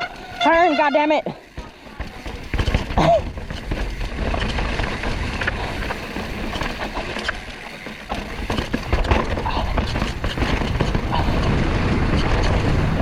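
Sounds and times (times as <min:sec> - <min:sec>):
mountain bike rattling on rocks: 0:00.0 - 0:13.0
wind rumble on microphone: 0:08.5 - 0:13.0.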